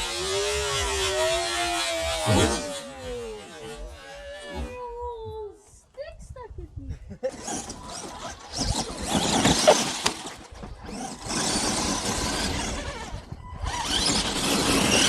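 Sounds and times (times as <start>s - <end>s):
electric rc trucks driving: 0.0s - 5.0s, 7.3s - 15.0s
tyres scrabbling: 7.7s - 12.9s.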